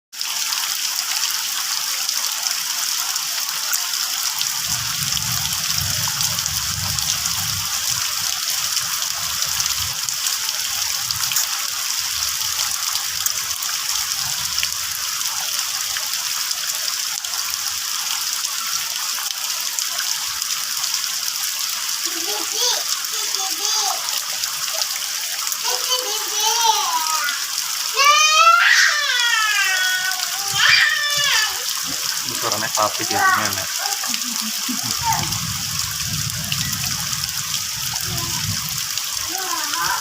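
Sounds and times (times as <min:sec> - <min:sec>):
steady rain falling: 0:00.2 - 0:40.0
low rumble: 0:34.9 - 0:38.8.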